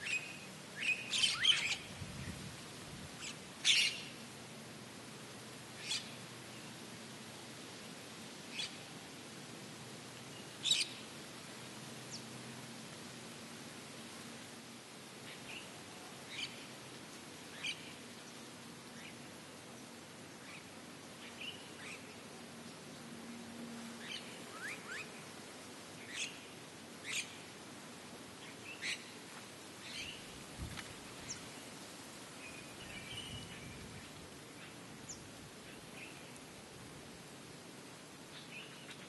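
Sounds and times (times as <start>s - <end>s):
small birds chirping: 0.0s - 2.4s, 10.3s - 11.0s, 27.0s - 27.5s, 28.4s - 29.2s
steady background hiss: 0.0s - 39.0s.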